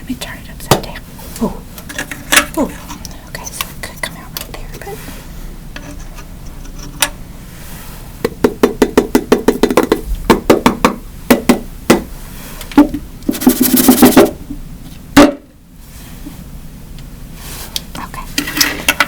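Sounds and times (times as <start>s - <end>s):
sharp knocks on a hard surface: 8.2s - 12.1s.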